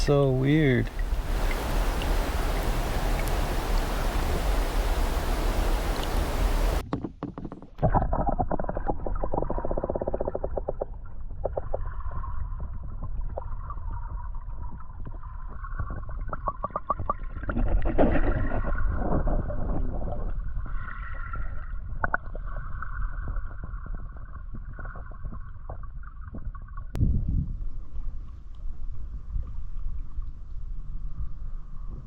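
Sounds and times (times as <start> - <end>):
paddle splashing water: 0.0 - 6.8
wind rumble on microphone: 0.0 - 6.8, 17.0 - 32.0.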